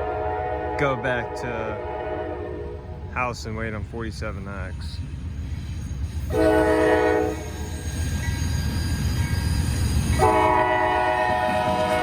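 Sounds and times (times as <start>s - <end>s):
locomotive air horn blasts: 0.0s - 3.0s, 6.3s - 7.7s, 10.2s - 12.0s
passing train rumble: 0.0s - 12.0s.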